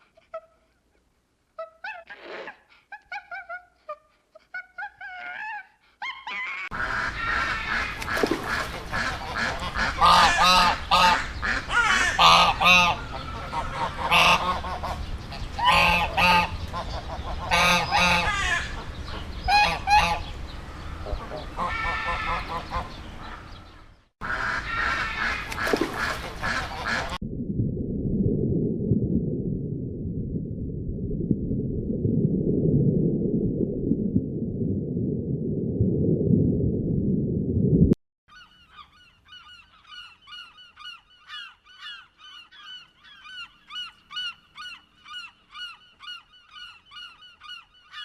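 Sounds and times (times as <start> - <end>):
waterfowl honking: 6.7 - 27.2
low sound: 27.2 - 38.0.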